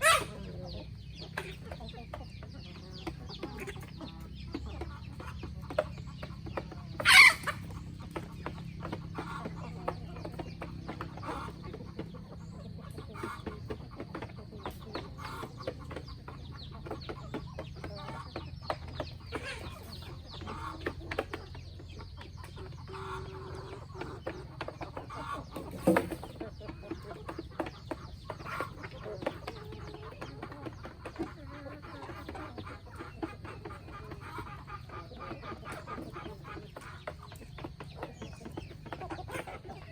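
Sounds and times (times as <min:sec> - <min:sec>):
chicken squawk: 0:00.0 - 0:39.9
chickens clucking: 0:00.0 - 0:39.9.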